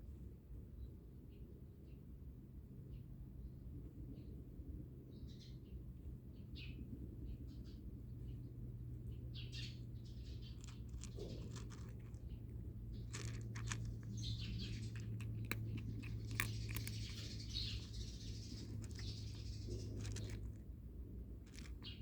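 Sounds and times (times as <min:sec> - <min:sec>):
small birds chirping: 0:05.1 - 0:22.0
sharp clicks: 0:13.0 - 0:20.6.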